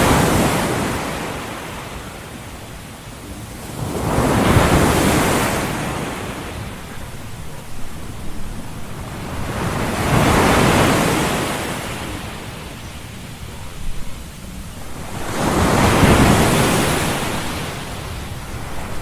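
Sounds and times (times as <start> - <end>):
ocean waves washing in: 0.0 - 19.0.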